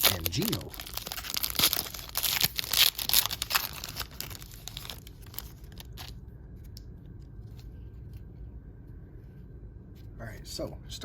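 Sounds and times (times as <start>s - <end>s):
wrapper crinkling and tearing: 0.0s - 6.8s.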